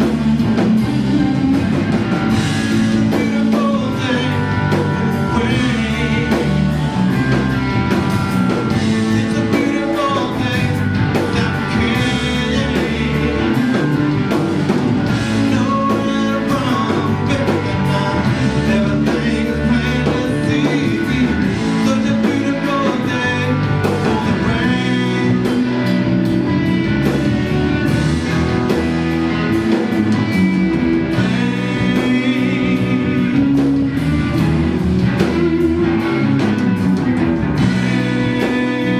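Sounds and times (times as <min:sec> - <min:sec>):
blues-rock band playing: 0:00.0 - 0:38.9
person singing: 0:02.7 - 0:07.4, 0:08.7 - 0:14.2, 0:15.2 - 0:26.0, 0:30.7 - 0:34.5, 0:37.6 - 0:38.9.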